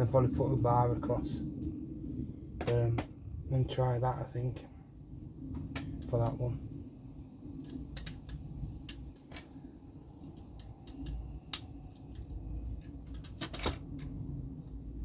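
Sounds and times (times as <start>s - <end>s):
low steady hum: 0.0s - 15.0s
clicks of small parts handled: 7.6s - 9.5s, 10.3s - 14.1s.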